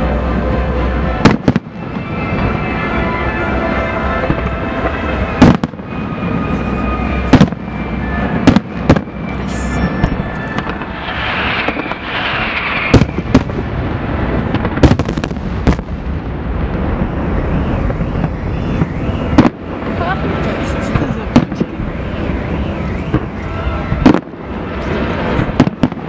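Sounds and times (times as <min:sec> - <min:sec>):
firework crackling: 0:00.0 - 0:26.0
sharp firework bangs: 0:01.2 - 0:02.0, 0:04.2 - 0:05.8, 0:07.3 - 0:21.8, 0:23.0 - 0:26.0
distant firework bursts: 0:04.2 - 0:26.0.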